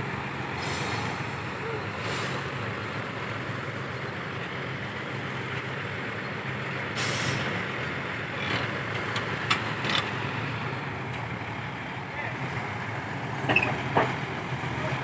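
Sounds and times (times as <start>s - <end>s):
heavy diesel engine running: 0.0s - 15.0s
air hissing: 0.6s - 1.4s, 2.0s - 2.6s.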